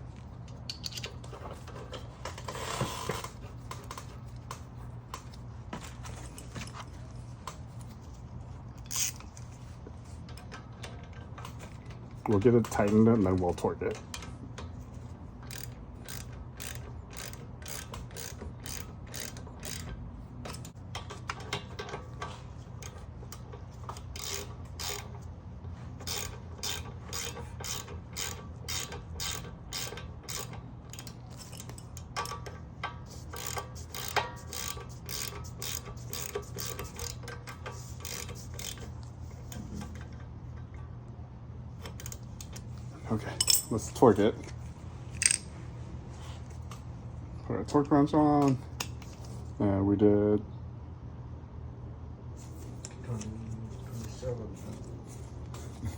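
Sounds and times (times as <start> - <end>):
ratchet wrench clicking: 0.7 - 1.2, 8.8 - 9.4, 15.4 - 22.0, 22.8 - 25.2, 26.0 - 39.6, 41.8 - 42.6.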